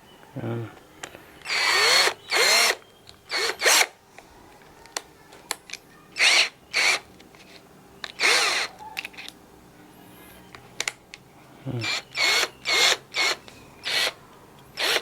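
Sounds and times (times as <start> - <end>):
cordless drill whirring: 1.4 - 4.0, 6.2 - 7.1, 8.1 - 8.7, 11.8 - 14.2, 14.8 - 15.0.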